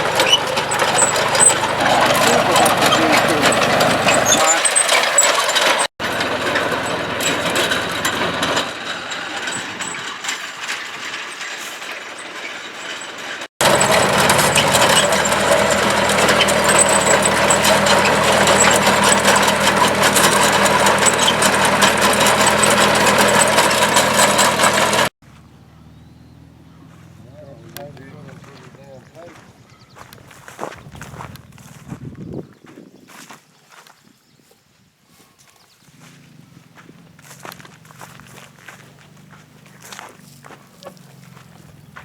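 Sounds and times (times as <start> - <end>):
harvester mechanism rattling: 0.0 - 25.1
tractor engine running: 0.0 - 28.6, 36.1 - 42.0.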